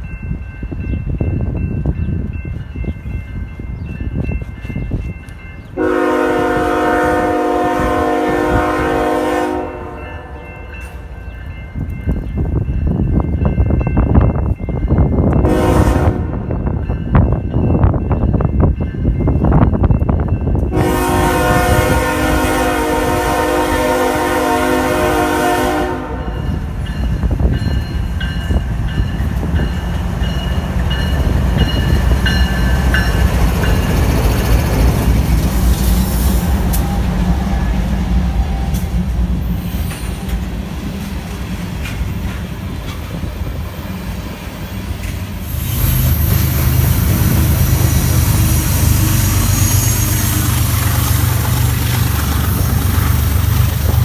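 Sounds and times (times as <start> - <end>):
low locomotive engine rumble: 0.0 - 54.0
locomotive horn chord: 5.8 - 10.6, 15.4 - 16.5, 20.7 - 26.4.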